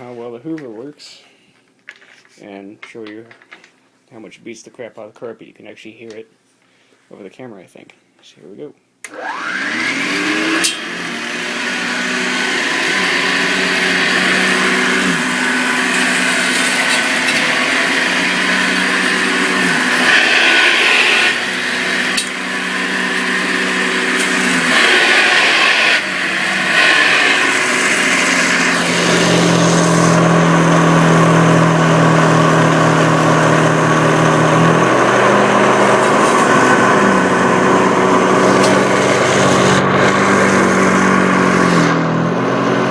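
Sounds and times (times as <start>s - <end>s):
vacuum cleaner motor: 9.0s - 42.9s.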